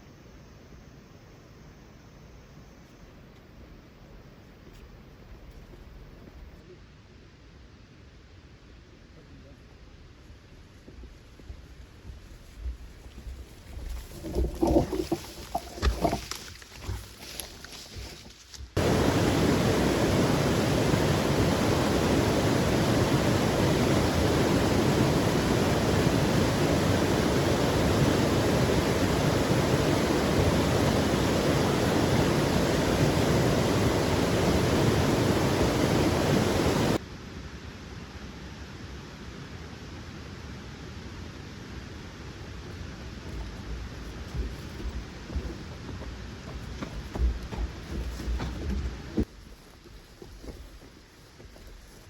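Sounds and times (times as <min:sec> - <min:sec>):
knocks and rustles: 0:11.5 - 0:18.8, 0:43.2 - 0:52.0
loud downpour of rain: 0:18.8 - 0:37.0.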